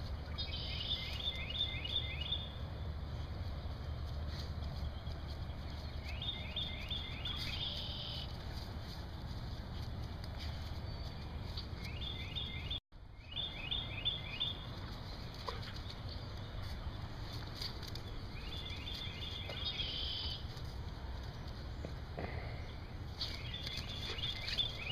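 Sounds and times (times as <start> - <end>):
bird chirping: 0.0 - 2.9, 4.7 - 8.4, 10.6 - 20.5, 21.7 - 24.9.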